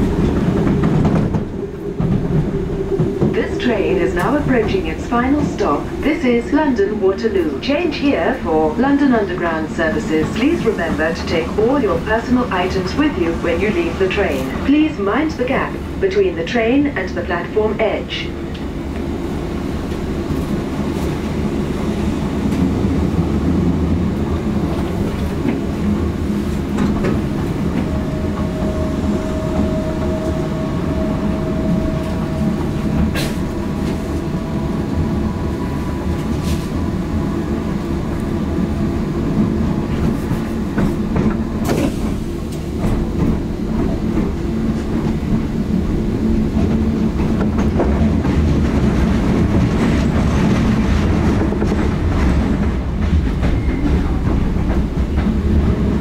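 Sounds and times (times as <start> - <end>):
train rumble: 0.0 - 56.0
train wheels clattering over joints: 39.9 - 56.0.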